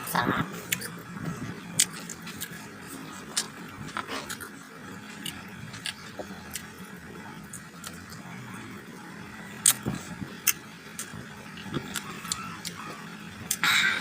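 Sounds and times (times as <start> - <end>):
low background hum: 0.0 - 14.0
mango being bitten and chewed: 1.7 - 8.2, 9.4 - 13.6.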